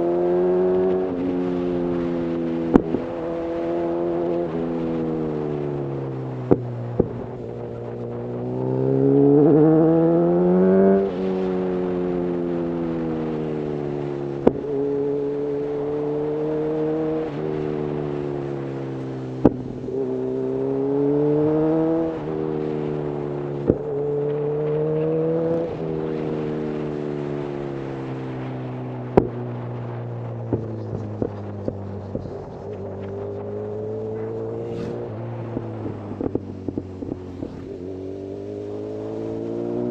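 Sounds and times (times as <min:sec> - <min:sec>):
motorcycle engine accelerating: 0:00.0 - 0:39.9
exhaust pops: 0:00.8 - 0:05.1, 0:06.4 - 0:09.6, 0:13.8 - 0:18.3, 0:19.3 - 0:22.9, 0:23.5 - 0:26.0, 0:28.9 - 0:39.0.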